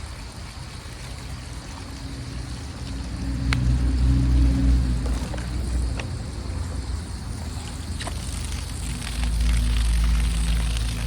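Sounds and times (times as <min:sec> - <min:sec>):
low droning hum: 0:00.0 - 0:11.0
faint clicks: 0:02.8 - 0:03.7.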